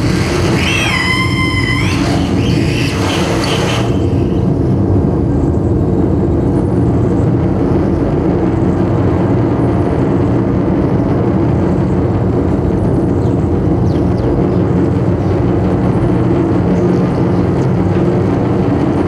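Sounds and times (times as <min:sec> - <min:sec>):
high wavering tone: 0:00.0 - 0:04.4
low noise music rumble: 0:00.0 - 0:19.0.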